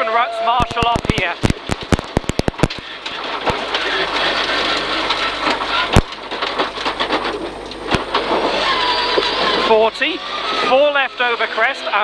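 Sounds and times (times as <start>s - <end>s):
sharp knocks: 0.6s - 3.7s
gravel rattling on car underbody: 0.6s - 11.0s
car engine: 0.7s - 12.0s.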